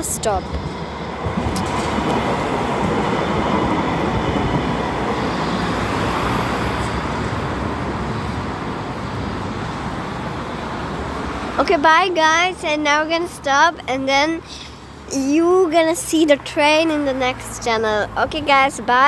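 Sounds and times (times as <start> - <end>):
tram wheels rumbling on rails: 0.0 - 14.4.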